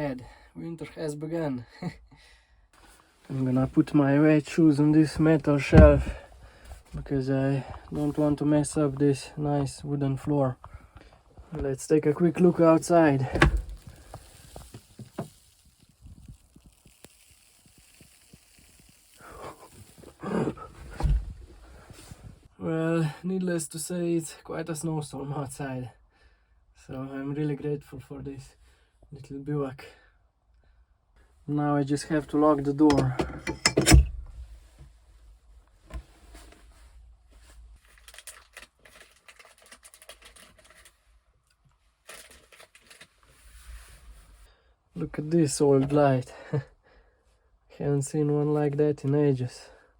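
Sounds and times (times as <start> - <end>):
small hard objects clicking: 13.7 - 20.2.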